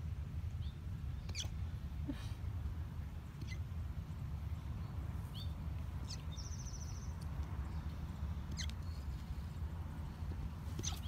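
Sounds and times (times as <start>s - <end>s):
steady low rumble: 0.0s - 11.0s
bird chirps and trill: 4.8s - 7.2s, 8.5s - 9.2s.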